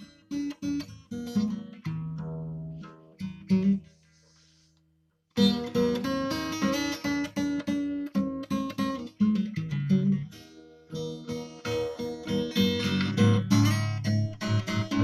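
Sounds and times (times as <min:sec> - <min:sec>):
acoustic guitar chords: 0:05.4 - 0:15.0.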